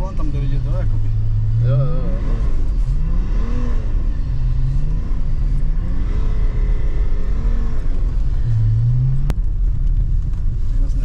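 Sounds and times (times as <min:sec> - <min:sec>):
diesel car engine revving: 0:00.0 - 0:11.0.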